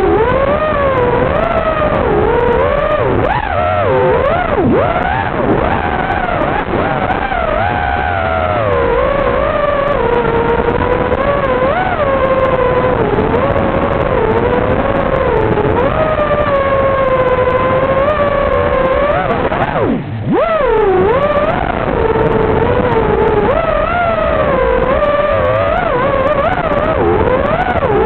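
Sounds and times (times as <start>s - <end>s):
quadcopter motors whining: 0.0s - 28.0s.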